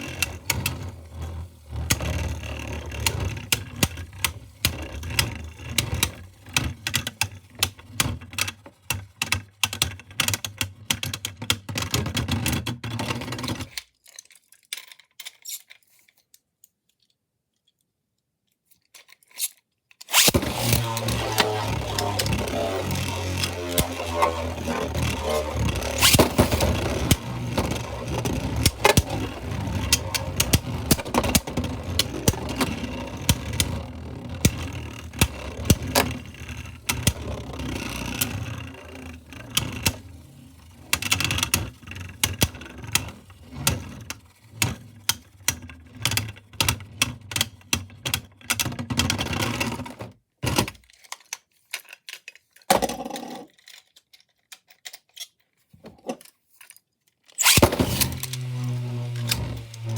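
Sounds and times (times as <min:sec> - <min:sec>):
spinning tops clashing in plastic: 0:20.1 - 0:44.0.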